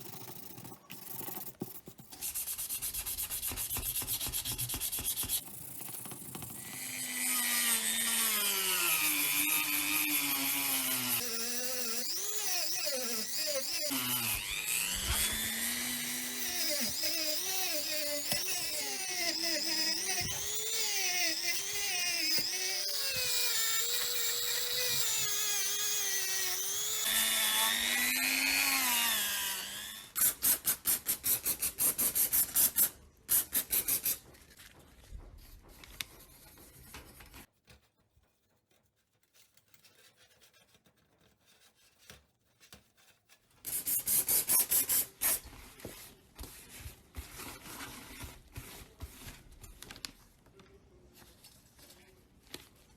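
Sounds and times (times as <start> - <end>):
rubbing or sanding strokes: 2.1 - 5.4
rotary tool whining: 5.4 - 30.3.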